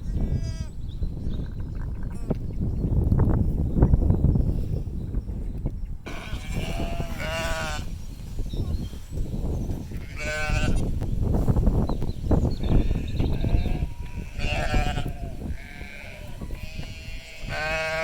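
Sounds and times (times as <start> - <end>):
sheep bleating: 6.1 - 7.9, 10.0 - 10.8, 12.6 - 18.0.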